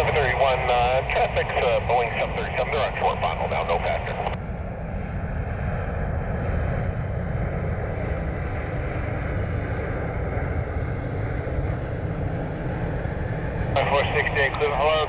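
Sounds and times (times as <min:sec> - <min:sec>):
wind buffeting microphone: 0:04.2 - 0:15.0.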